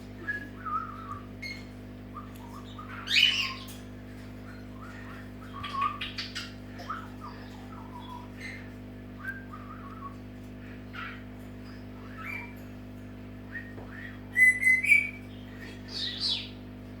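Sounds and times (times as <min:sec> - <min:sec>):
parrot whistling and chirping: 0:00.2 - 0:03.6, 0:12.0 - 0:12.5, 0:13.5 - 0:15.2.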